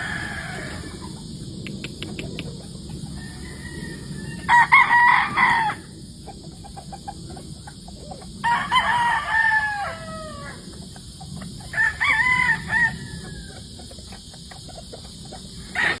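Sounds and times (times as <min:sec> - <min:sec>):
roosters crowing: 0:00.0 - 0:16.0
hen clucking: 0:00.6 - 0:04.5, 0:06.1 - 0:08.4, 0:13.1 - 0:16.0.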